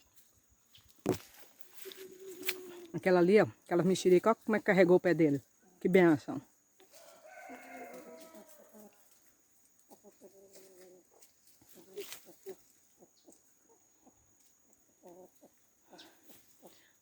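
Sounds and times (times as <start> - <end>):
chickens clucking faintly: 6.7 - 17.0.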